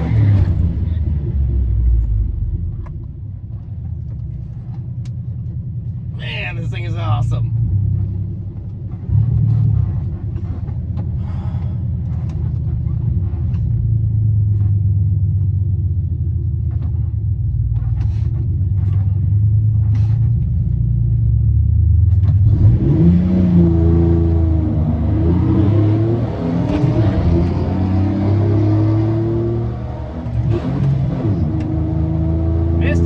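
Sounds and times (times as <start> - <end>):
pickup engine running and revving: 6.9 - 33.0.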